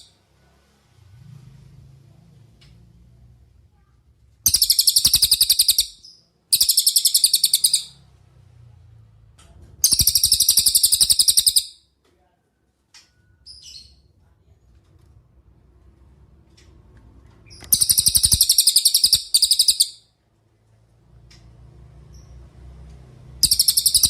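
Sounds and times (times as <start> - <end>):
bird rattling trills: 4.5 - 7.9, 9.8 - 11.7, 17.7 - 20.0, 23.4 - 24.0.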